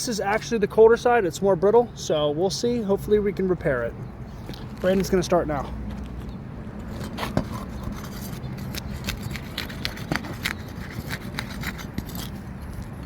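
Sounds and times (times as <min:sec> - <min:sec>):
shingle scraping and clicking: 0:05.8 - 0:13.0.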